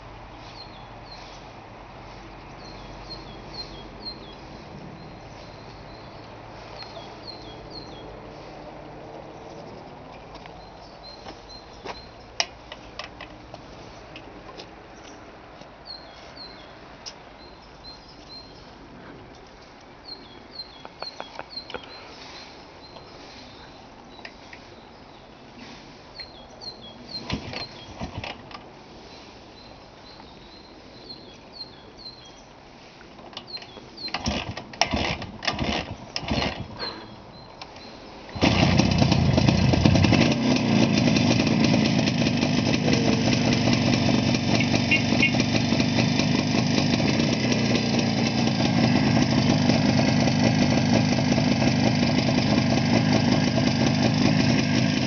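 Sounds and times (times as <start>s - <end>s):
motorcycle engine running: 38.4s - 55.0s.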